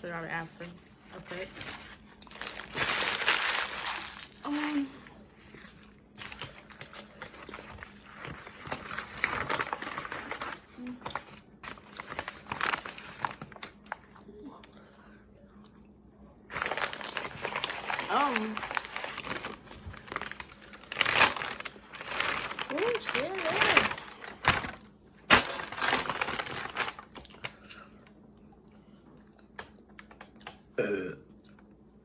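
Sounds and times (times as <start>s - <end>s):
sandwich wrapper crinkling: 1.2s - 14.0s, 16.5s - 27.7s.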